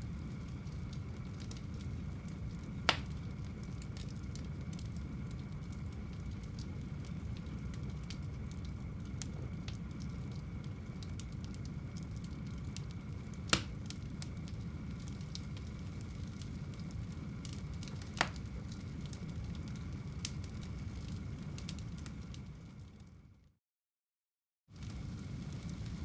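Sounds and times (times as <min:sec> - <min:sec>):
loud fire pops: 0:00.0 - 0:22.5, 0:24.8 - 0:26.0
wood fire burning: 0:00.0 - 0:23.5, 0:24.8 - 0:26.0.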